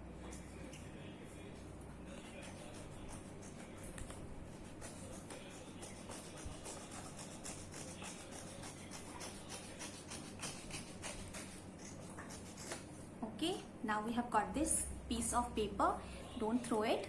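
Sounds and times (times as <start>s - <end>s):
scissors snipping paper: 4.8s - 12.9s.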